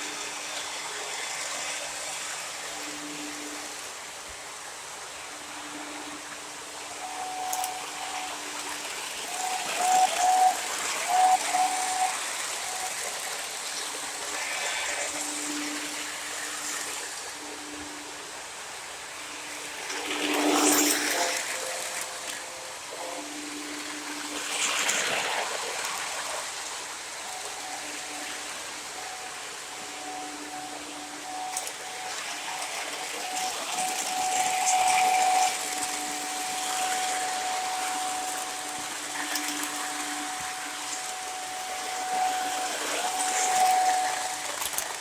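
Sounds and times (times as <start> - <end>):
model train whirring on track: 0.0 - 45.0
faint held tones: 5.2 - 14.1, 27.2 - 45.0.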